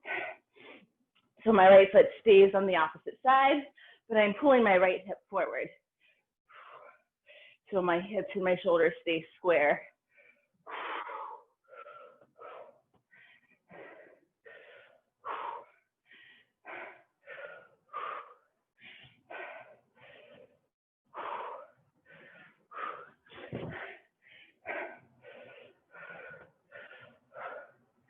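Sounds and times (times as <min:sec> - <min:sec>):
person breathing hard and fast: 0:00.0 - 0:01.0, 0:05.8 - 0:07.7, 0:09.8 - 0:28.0.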